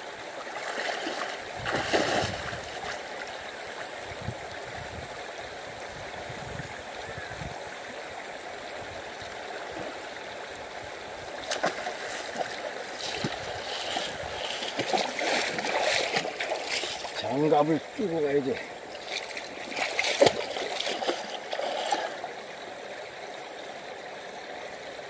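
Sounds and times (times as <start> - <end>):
flowing river water: 0.0 - 25.0
person wading through water: 0.2 - 3.5, 11.4 - 22.4.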